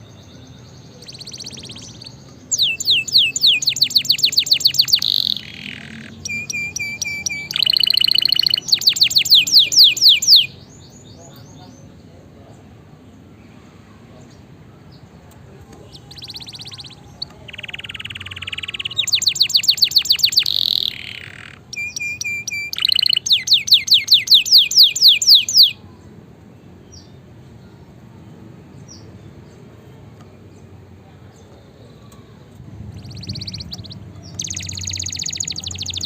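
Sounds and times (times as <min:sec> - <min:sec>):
canary singing: 0:00.0 - 0:11.5, 0:15.8 - 0:25.8, 0:31.5 - 0:36.0.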